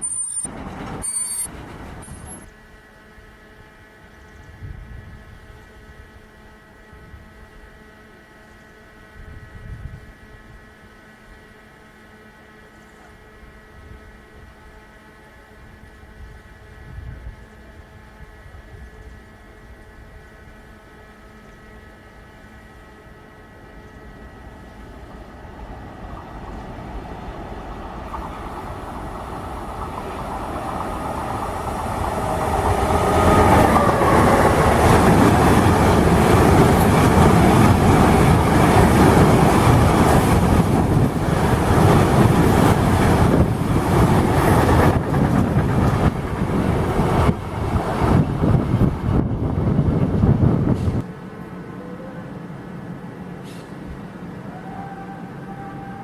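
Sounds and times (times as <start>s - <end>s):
train passing: 0.0s - 56.0s
wheels clattering over rail joints: 0.4s - 2.5s.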